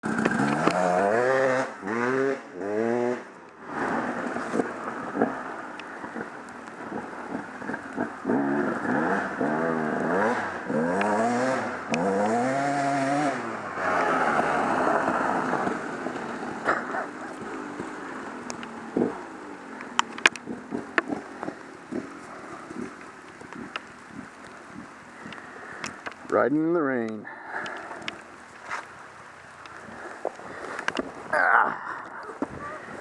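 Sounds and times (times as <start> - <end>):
off-road vehicle engine accelerating: 0.0 - 26.4
steady rushing noise: 3.2 - 33.0.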